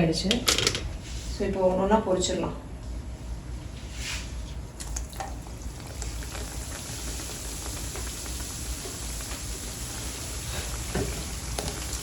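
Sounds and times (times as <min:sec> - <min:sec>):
dough frying in hot oil: 0:05.1 - 0:12.0.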